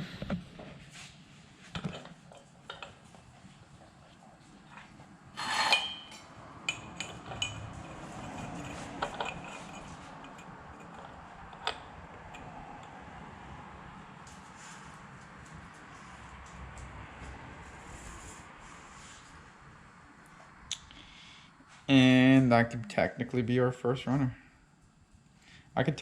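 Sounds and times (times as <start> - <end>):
metal pipes clinking and clanking: 5.4 - 12.4.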